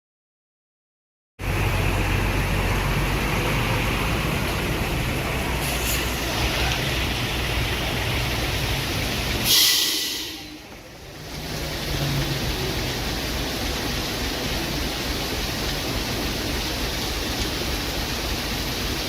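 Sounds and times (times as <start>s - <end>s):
loud hiss: 5.5s - 6.8s, 9.0s - 10.6s.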